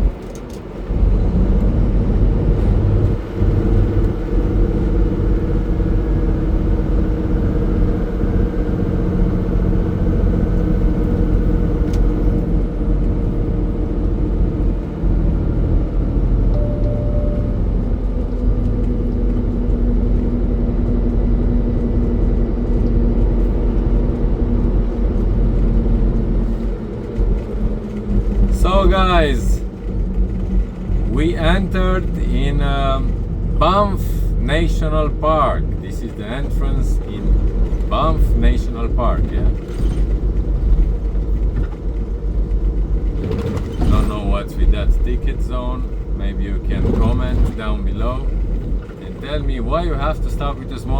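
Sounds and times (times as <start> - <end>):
road noise: 0.0 - 50.9
truck diesel engine droning: 0.0 - 50.9.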